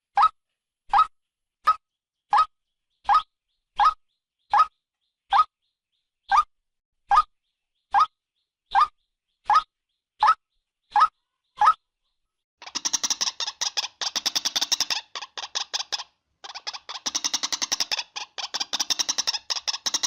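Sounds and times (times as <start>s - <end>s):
waterhen calling: 12.6s - 20.0s.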